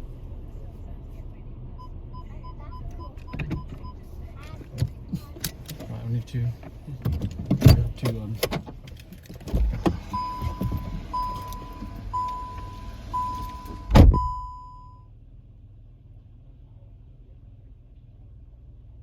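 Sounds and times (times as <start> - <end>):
car warning chime beeping: 1.8 - 4.0, 10.0 - 15.1
car door slamming: 9.4 - 14.4.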